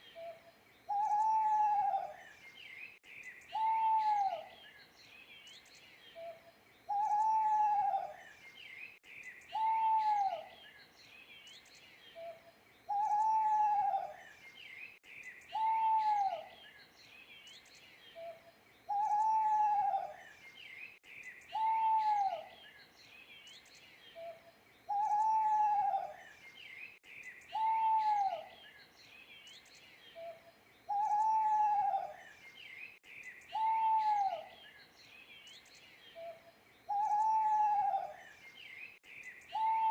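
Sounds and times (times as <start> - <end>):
small birds chirping faintly: 0.0 - 39.9
owl hooting: 0.9 - 2.2, 3.5 - 4.5, 6.9 - 8.2, 9.5 - 10.5, 12.2 - 14.2, 15.5 - 16.5, 18.2 - 20.2, 21.5 - 22.5, 24.2 - 26.2, 27.5 - 28.5, 30.2 - 32.2, 33.5 - 34.6, 36.2 - 38.2, 39.5 - 39.9.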